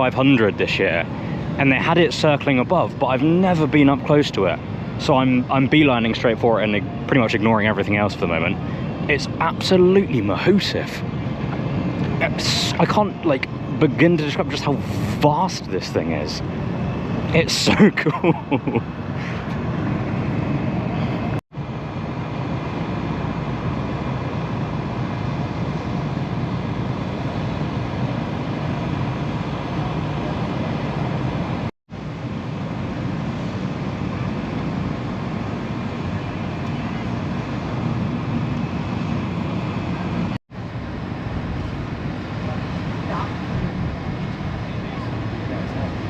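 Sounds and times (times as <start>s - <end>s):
engines rumbling: 0.0s - 46.0s
crowd voices: 42.3s - 46.0s.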